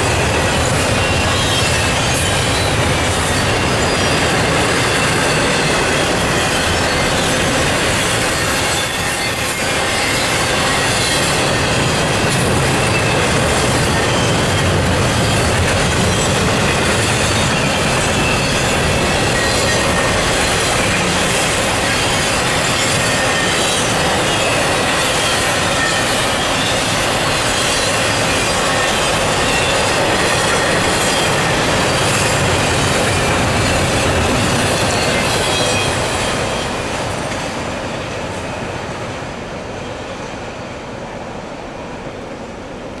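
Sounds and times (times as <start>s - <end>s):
thin high wheel squeal: 0.0s - 36.8s
train wheels on rails: 0.0s - 43.0s.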